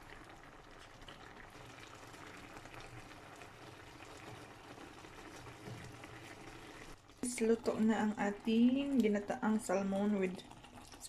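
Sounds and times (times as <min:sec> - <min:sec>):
sauce bubbling in a pot: 0:00.0 - 0:11.0.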